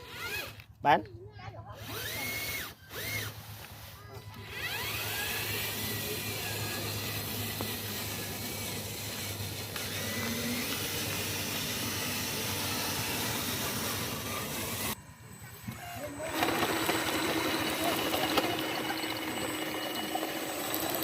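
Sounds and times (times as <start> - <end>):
hissing whir of small motors: 0.0 - 0.7, 1.7 - 21.0
faint wavering whine: 12.3 - 21.0.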